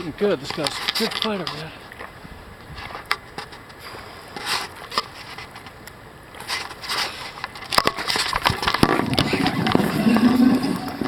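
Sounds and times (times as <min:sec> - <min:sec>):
water splashing: 0:07.7 - 0:11.0.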